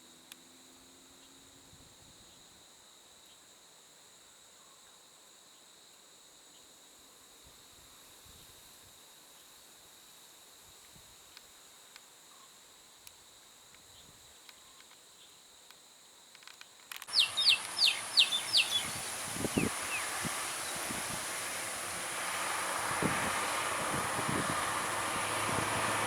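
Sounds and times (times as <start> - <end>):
outdoor background: 0.0 - 26.0
bird whistling falling notes: 17.1 - 21.0
high insect-like drone: 17.1 - 26.0.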